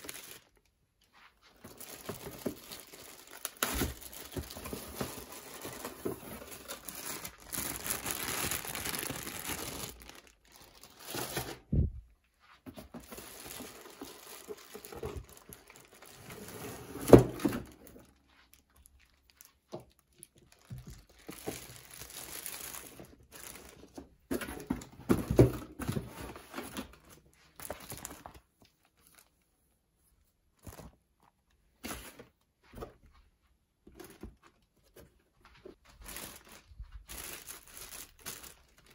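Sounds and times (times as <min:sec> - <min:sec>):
wrapping crinkling and tearing: 0:00.0 - 0:00.7, 0:01.4 - 0:11.7, 0:12.9 - 0:24.1, 0:26.2 - 0:29.4, 0:35.9 - 0:38.9.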